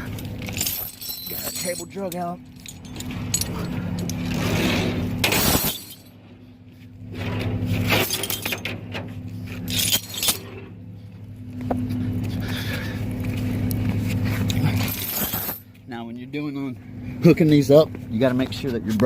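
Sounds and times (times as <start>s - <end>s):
tow chain clanking: 0.0s - 11.0s, 14.2s - 15.8s
diesel engine idling: 8.8s - 14.9s, 15.6s - 19.0s.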